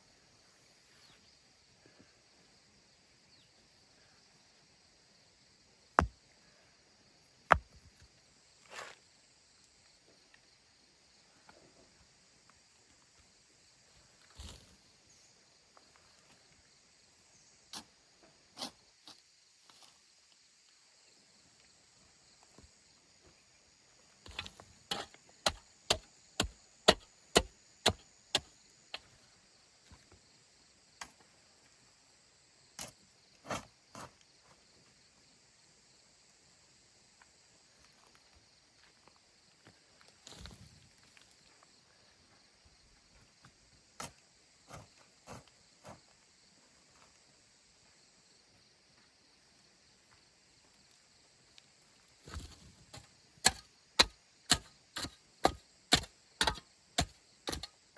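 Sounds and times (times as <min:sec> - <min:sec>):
high hiss of insects: 0:00.0 - 0:57.9
tool knocking wood or earth: 0:07.5 - 0:08.0, 0:24.3 - 0:28.5, 0:52.3 - 0:57.7.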